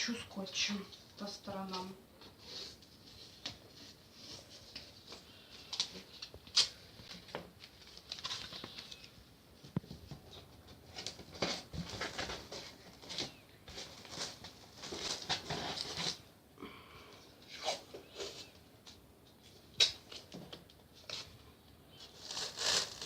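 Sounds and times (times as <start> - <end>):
masking tape ripping: 19.7 - 20.3, 22.2 - 23.0.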